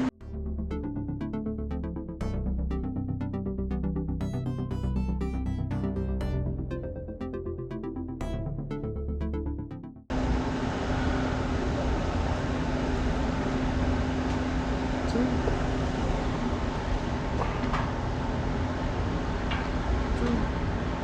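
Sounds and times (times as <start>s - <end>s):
electronic music: 0.0s - 10.1s
noisy background with low hum: 10.1s - 21.0s.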